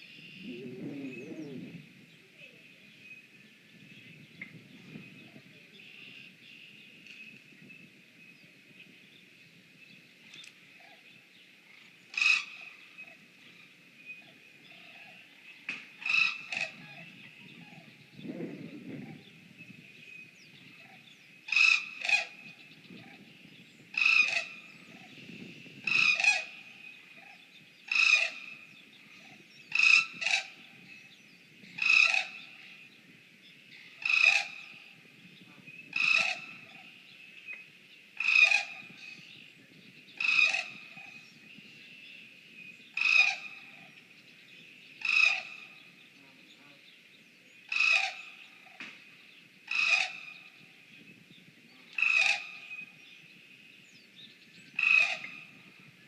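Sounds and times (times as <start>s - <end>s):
animal call: 0.3s - 2.6s, 47.7s - 48.4s, 49.7s - 50.3s, 51.9s - 52.7s.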